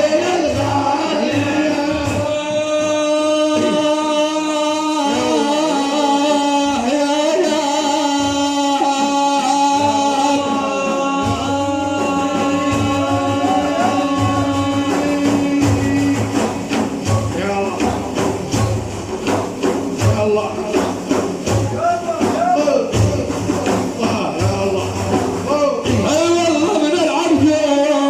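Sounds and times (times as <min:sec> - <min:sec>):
man singing ornamented lines: 0:00.0 - 0:18.3
frame drums beating: 0:00.0 - 0:28.0.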